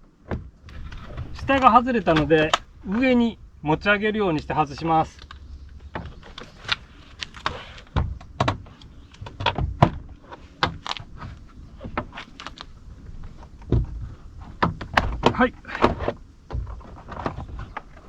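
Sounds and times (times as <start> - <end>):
heavier thuds: 0.6 - 4.6
plastic trim clicks and knocks: 0.7 - 3.1.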